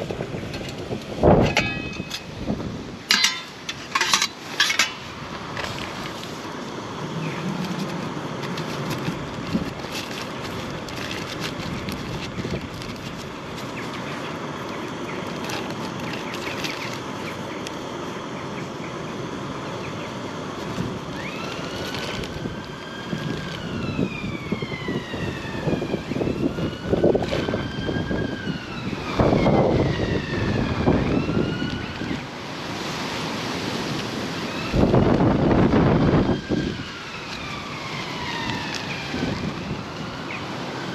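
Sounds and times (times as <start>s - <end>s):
distant siren wailing: 6.4s - 40.9s.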